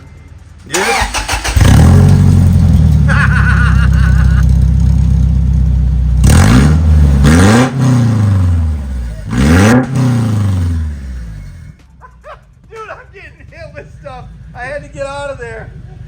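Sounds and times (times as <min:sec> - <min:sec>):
pickup truck engine revving: 0:00.7 - 0:11.7.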